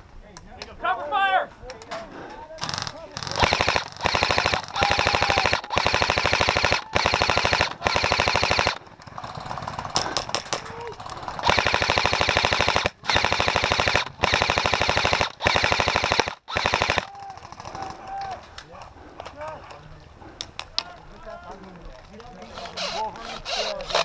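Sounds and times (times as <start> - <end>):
airsoft gun firing bursts: 2.6 - 18.0.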